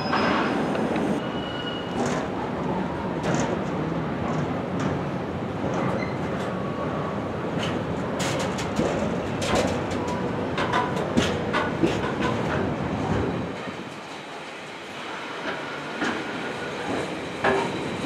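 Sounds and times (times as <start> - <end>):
freight wagons rolling on rails: 7.4 - 18.0
clanks and clicks: 7.6 - 13.3.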